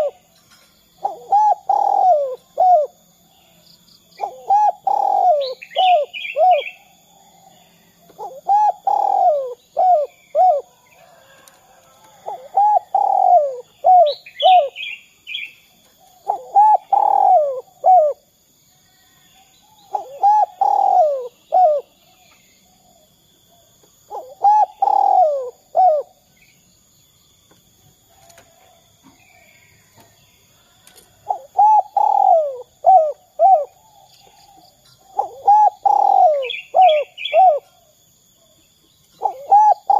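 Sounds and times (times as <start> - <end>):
dove cooing: 0.0 - 0.2, 1.0 - 3.0, 4.2 - 7.5, 8.1 - 18.3, 19.9 - 26.3, 30.7 - 38.6, 39.2 - 39.9
small bird chirping: 0.0 - 11.4, 12.0 - 18.2, 29.0 - 39.9.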